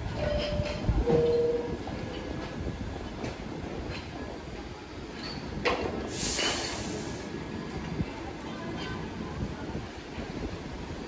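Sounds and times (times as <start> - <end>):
subway train wheels clacking: 0.0 - 11.0
loud hiss: 6.1 - 7.4.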